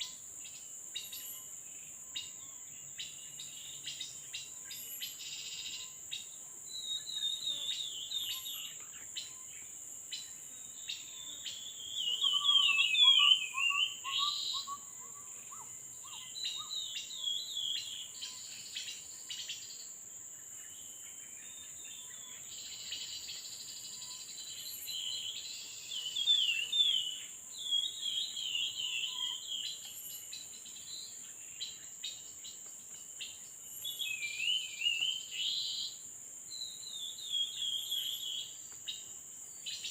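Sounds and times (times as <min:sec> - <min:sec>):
songbirds warbling: 0:02.1 - 0:19.8, 0:21.5 - 0:39.9
high insect buzz: 0:03.0 - 0:19.9.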